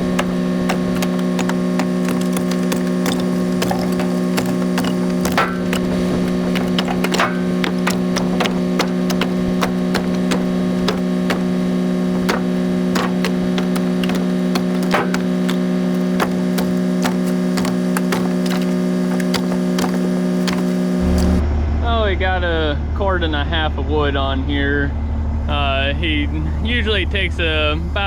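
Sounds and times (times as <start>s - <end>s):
firewood knocking and clattering: 0.0s - 21.4s.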